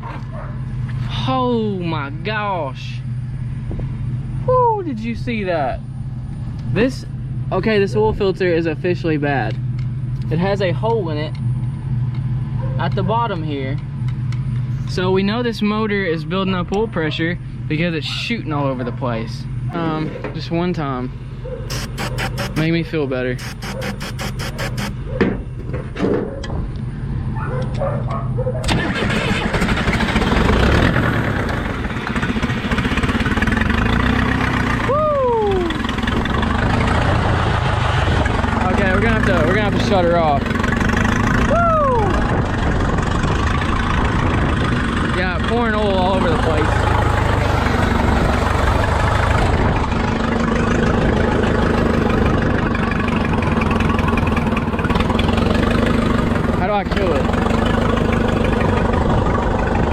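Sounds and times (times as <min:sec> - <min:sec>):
backhoe engine cranking and running: 0:21.6 - 0:22.7, 0:23.4 - 0:34.9, 0:46.2 - 0:59.9.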